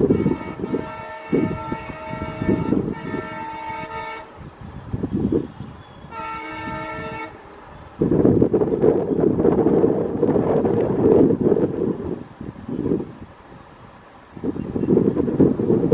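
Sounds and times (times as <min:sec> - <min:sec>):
diesel locomotive horn blasts: 0:00.0 - 0:07.8
wind buffeting microphone: 0:00.0 - 0:15.9.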